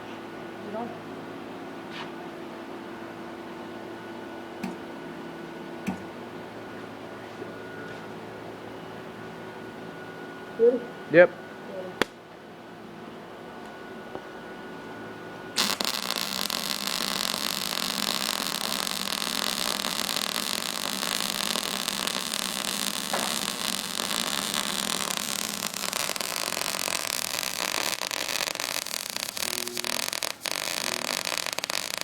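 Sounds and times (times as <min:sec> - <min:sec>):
welding arc crackling and hissing: 0:15.6 - 0:32.0.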